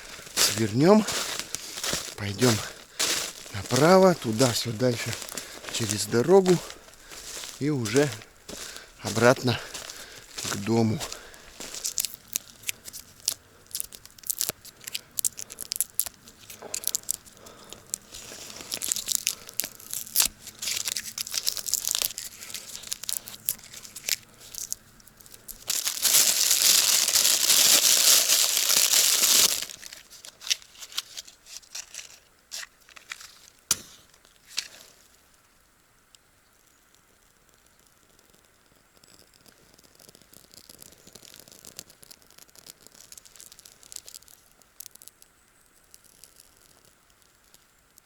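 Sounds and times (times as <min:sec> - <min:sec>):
footsteps crunching through dry leaves: 0:00.0 - 0:34.8
leaves rustling: 0:00.0 - 0:35.3, 0:41.0 - 0:44.9.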